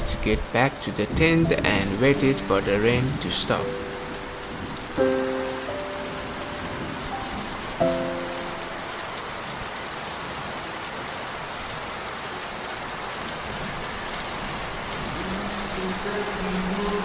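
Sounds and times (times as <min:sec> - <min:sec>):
soft background music: 0:00.0 - 0:09.3
raindrops ticking: 0:00.0 - 0:10.9
steady rain falling: 0:00.0 - 0:17.0.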